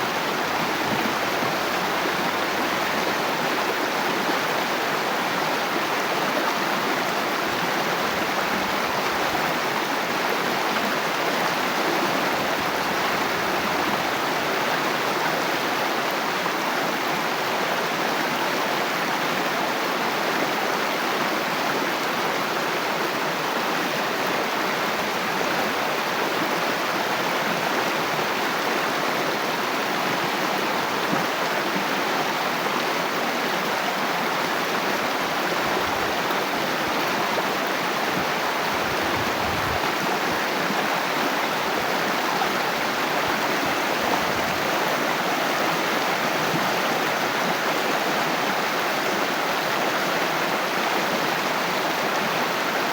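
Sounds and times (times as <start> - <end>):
stream water rushing: 0.0 - 52.9.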